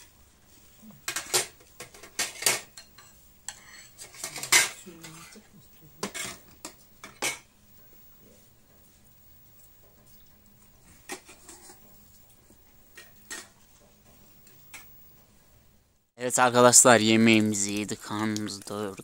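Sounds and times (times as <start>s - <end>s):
cutlery clinking on plates: 1.0s - 5.4s, 6.0s - 7.5s, 12.9s - 13.6s.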